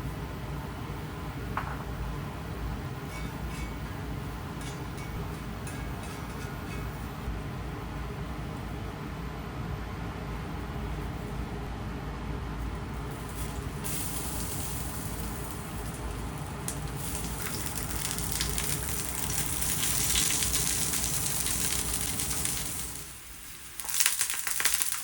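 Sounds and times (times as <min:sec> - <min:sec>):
steady low hum: 0:00.0 - 0:23.8
food sizzling in a hot pan: 0:13.1 - 0:25.0.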